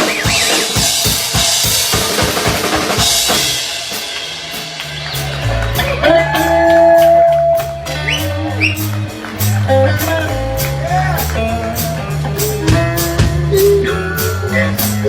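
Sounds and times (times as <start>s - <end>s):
drums with cymbals: 0.0s - 15.0s
bass line: 3.0s - 15.0s.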